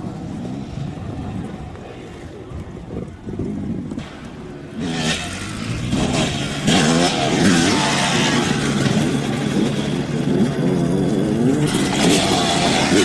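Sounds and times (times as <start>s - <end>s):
dirt bike engine revving: 4.0s - 13.0s.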